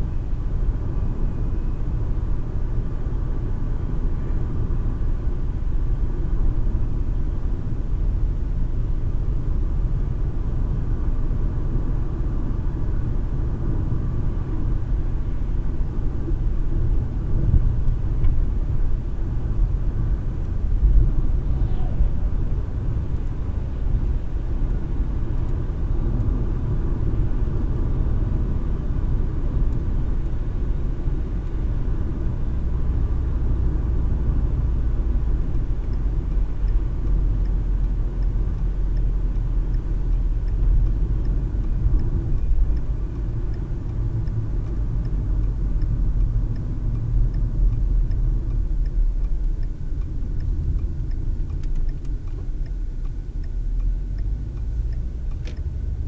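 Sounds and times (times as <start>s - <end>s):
car tyres and engine rumble: 0.0s - 56.0s
faint regular ticking: 35.4s - 56.0s.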